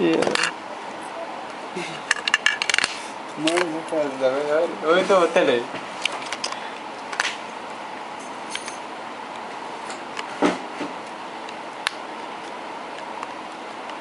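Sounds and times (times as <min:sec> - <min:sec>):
steady background hiss: 0:00.0 - 0:14.0
small tools clicking and clinking: 0:02.1 - 0:03.7.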